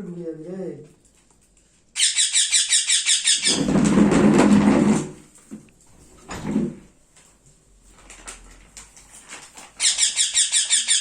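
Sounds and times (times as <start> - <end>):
baby parrot squeaking: 2.0 - 3.7, 9.8 - 11.0.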